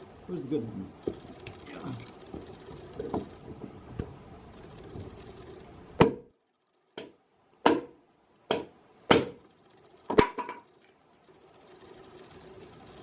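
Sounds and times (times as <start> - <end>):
hammer striking wood: 6.0 - 6.3, 7.0 - 9.4.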